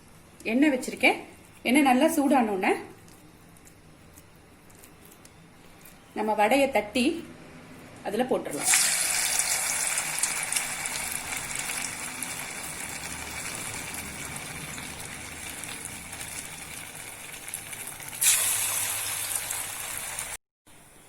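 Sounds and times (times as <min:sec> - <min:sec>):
food sizzling in hot oil: 0:08.5 - 0:20.4.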